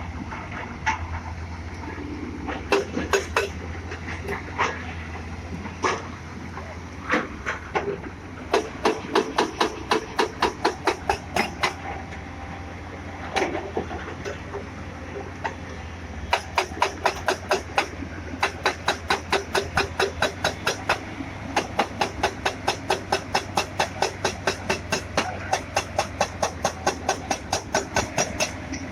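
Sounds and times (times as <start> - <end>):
excavator running: 0.0 - 28.9.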